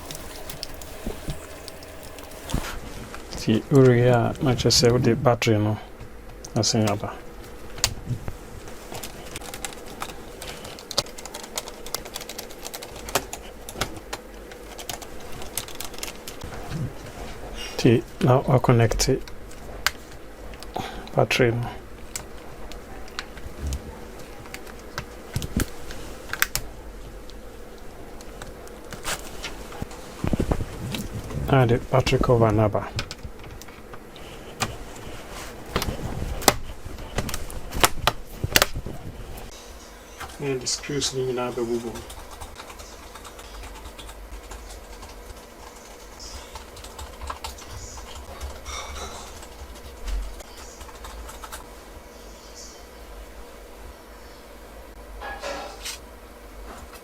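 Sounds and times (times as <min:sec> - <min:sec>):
faint steady hum: 0:00.0 - 0:57.0
hands clicking laptop parts: 0:09.0 - 0:16.4.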